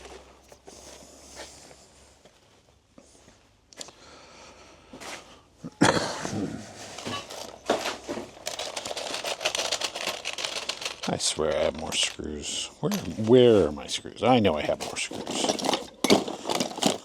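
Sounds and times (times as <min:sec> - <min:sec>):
rustling and crinkling: 0:06.2 - 0:17.0.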